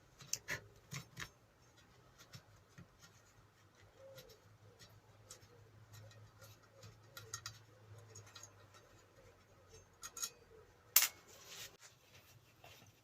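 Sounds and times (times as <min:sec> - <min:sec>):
metallic clicks of hand tools: 0:09.7 - 0:11.2.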